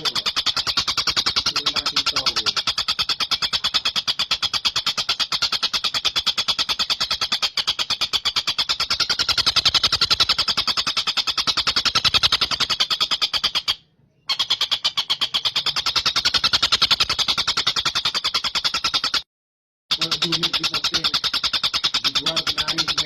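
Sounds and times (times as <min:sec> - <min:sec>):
kingfisher calling rattle: 0:00.0 - 0:19.2, 0:19.9 - 0:23.0.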